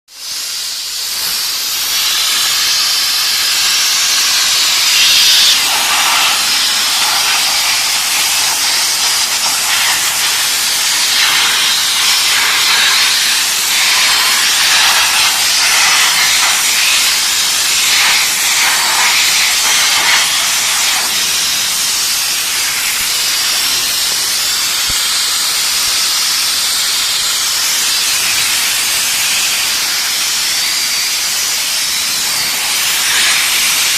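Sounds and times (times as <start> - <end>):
steam jetting with loud hiss: 0.1 - 33.9.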